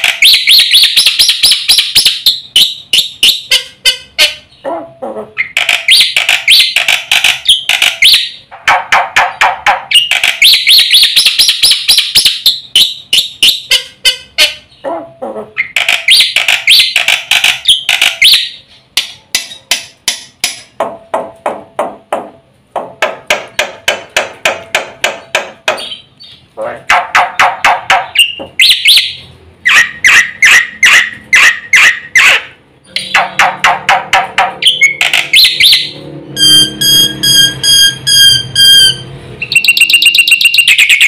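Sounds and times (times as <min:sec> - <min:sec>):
bird singing clicks and trills: 0:05.4 - 0:08.4, 0:09.0 - 0:13.8, 0:15.6 - 0:19.8, 0:32.9 - 0:35.9, 0:39.4 - 0:41.0.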